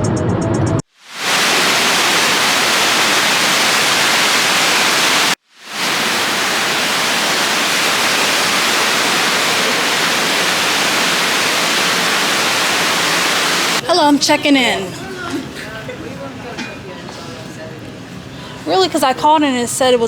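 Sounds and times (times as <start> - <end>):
loud static hiss: 0.9 - 14.0.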